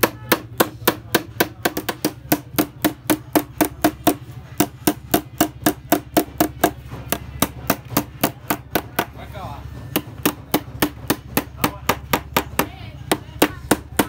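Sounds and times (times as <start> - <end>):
hammer tapping metal: 0.0 - 9.2.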